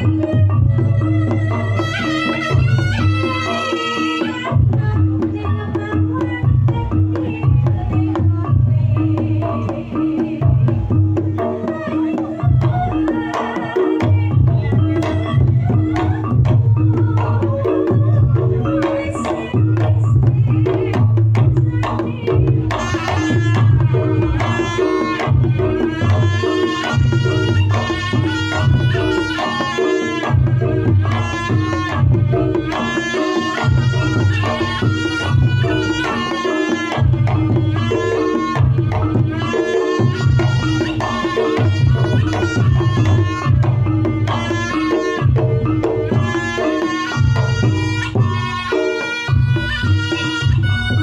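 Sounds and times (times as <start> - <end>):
gamelan music through sound system: 0.0 - 51.0
hand drumming: 0.0 - 51.0
high wavering melody: 0.0 - 51.0.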